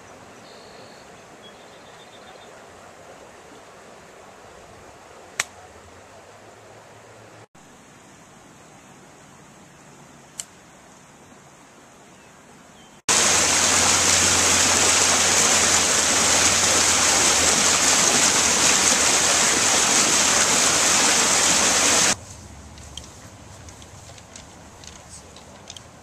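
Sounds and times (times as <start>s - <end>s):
loud rushing hiss: 13.1s - 22.4s.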